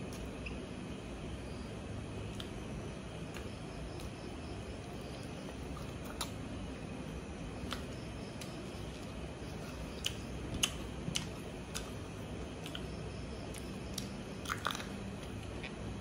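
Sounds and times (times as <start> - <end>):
steady low hum: 0.0 - 16.0
person chewing food: 7.6 - 15.9.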